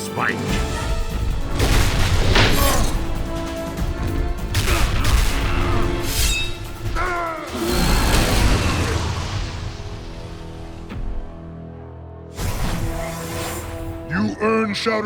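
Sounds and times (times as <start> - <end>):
action music: 0.0 - 15.0
booming impacts and whooshes: 0.6 - 11.5.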